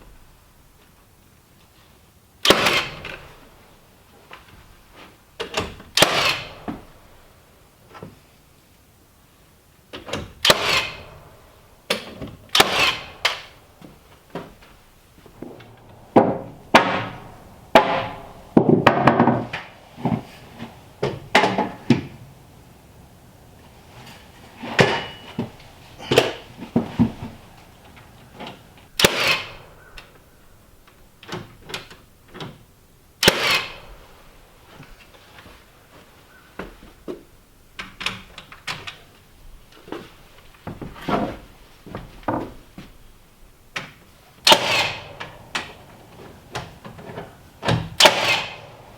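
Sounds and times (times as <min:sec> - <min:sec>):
knocks and bangs on lumber: 0:15.2 - 0:29.5, 0:44.5 - 0:48.9.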